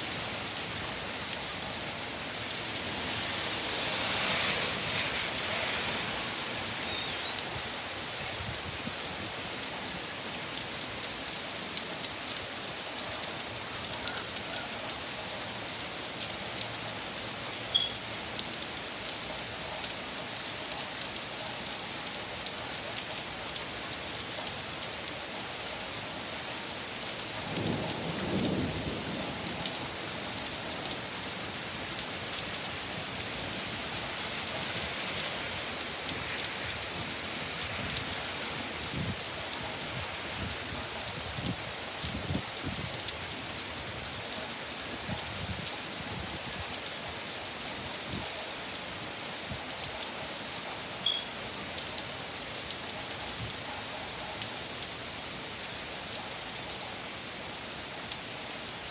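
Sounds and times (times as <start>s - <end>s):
heavy rain falling: 0.0s - 58.9s
low rumble of thunder: 27.4s - 31.0s.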